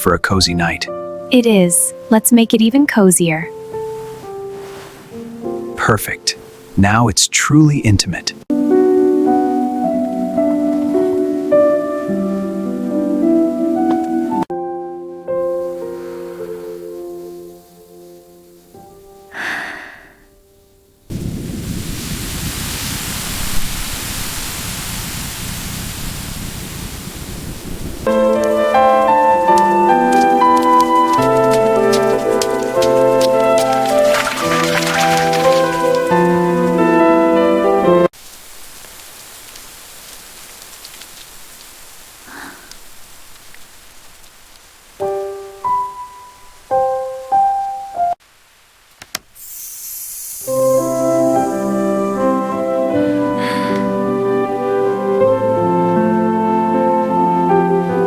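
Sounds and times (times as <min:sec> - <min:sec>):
heavy rain hissing: 0:02.9 - 0:14.5, 0:15.3 - 0:47.5, 0:48.1 - 0:58.0
raindrops ticking: 0:28.0 - 0:37.1, 0:38.2 - 0:46.5.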